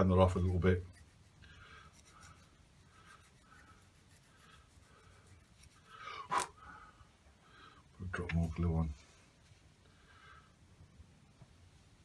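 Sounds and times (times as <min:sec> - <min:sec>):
nail file sanding foam: 0:00.0 - 0:06.4.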